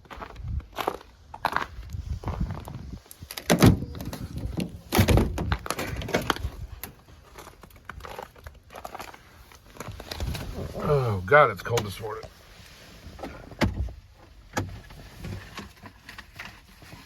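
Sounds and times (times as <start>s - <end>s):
door opening and shutting: 3.4s - 6.4s.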